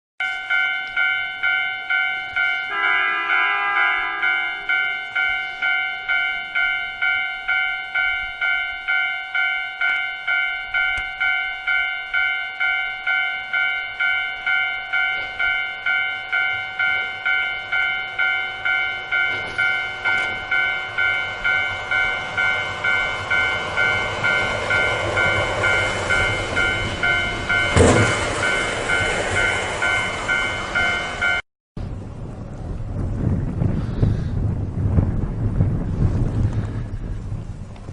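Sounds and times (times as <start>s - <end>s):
level crossing signal ringing: 0.2s - 31.4s
train rumbling: 0.3s - 37.9s
short horn blast: 2.7s - 4.8s
sharp bang: 27.6s - 28.6s.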